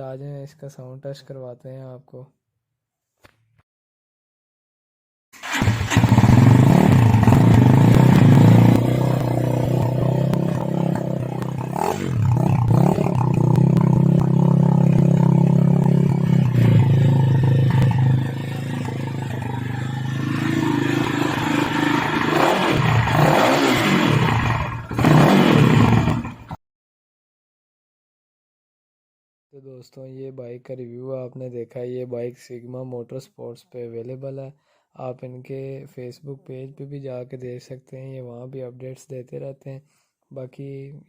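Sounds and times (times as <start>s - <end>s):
motorcycle engine revving: 5.4s - 26.6s.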